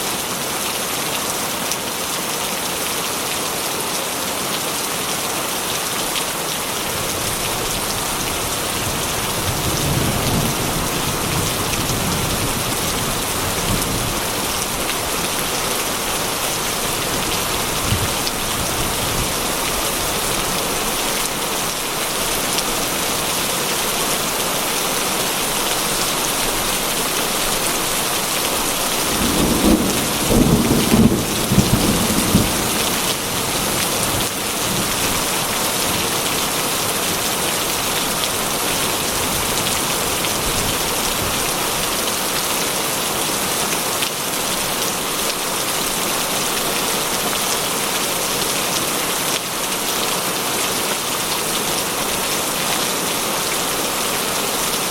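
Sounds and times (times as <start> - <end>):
heavy rain on a metal roof: 0.0 - 54.9
thunder rolling: 29.2 - 33.5.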